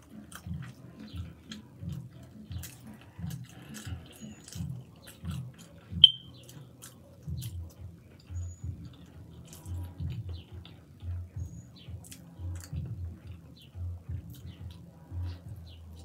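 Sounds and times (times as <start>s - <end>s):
chewing with wet mouth smacks: 0.0s - 16.0s.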